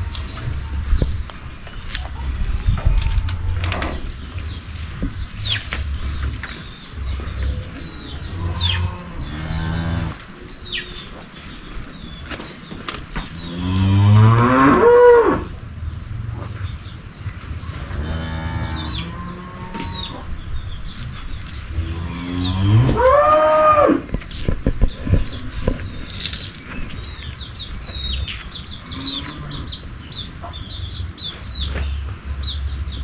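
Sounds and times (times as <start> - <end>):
cow mooing: 7.1 - 10.2, 13.4 - 15.5, 17.7 - 20.3, 21.8 - 24.0.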